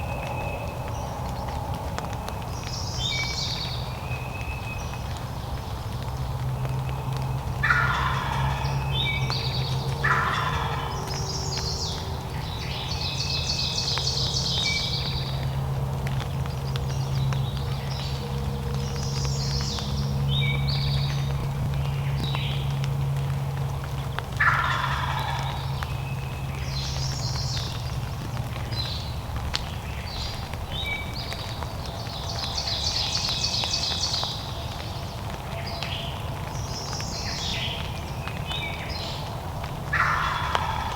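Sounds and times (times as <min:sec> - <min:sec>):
turkey gobbling: 0:07.6 - 0:08.7, 0:10.0 - 0:11.2, 0:24.4 - 0:25.9, 0:39.8 - 0:40.9.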